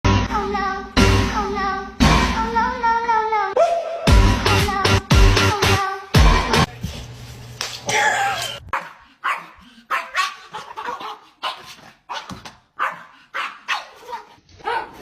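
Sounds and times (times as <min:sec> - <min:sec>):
dog barking: 0:08.7 - 0:15.0.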